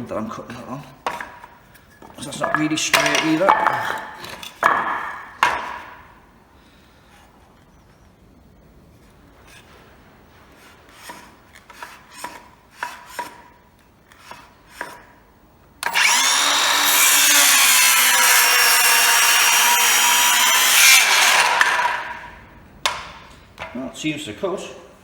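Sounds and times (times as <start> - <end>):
circular saw cutting wood: 2.4 - 4.5, 15.8 - 22.4.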